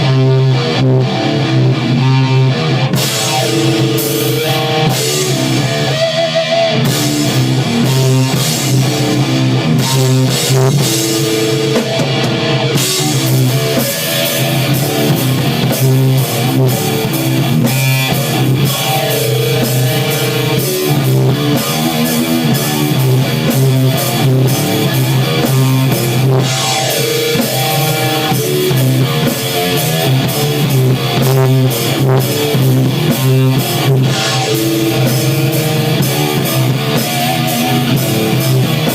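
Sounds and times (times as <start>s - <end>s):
drum kit: 0.0s - 38.9s
electric guitar: 0.0s - 38.9s.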